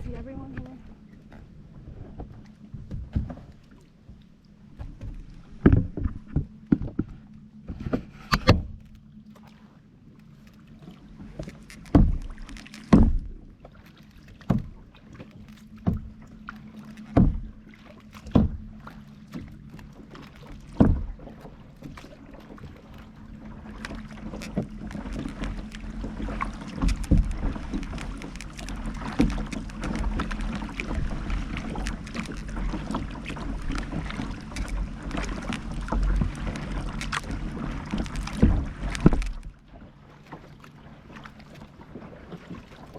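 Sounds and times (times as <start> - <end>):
paddle strokes and splashes: 0.0 - 42.9
rushing water: 9.4 - 42.9.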